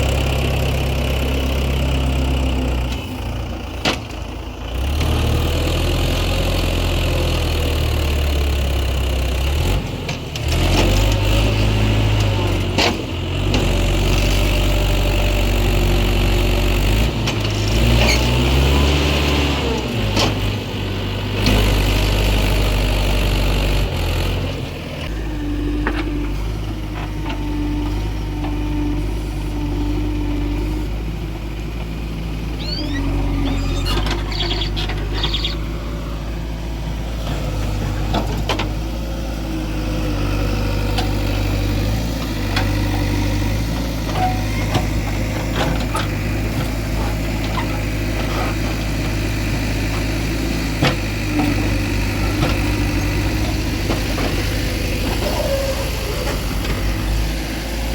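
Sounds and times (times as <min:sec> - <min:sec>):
diesel engines revving: 0:00.0 - 0:57.9.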